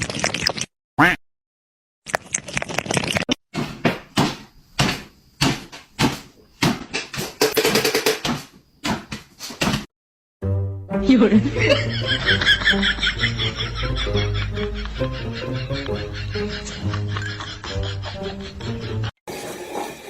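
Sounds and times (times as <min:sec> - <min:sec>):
sharp knocks and thumps: 0:03.5 - 0:09.9.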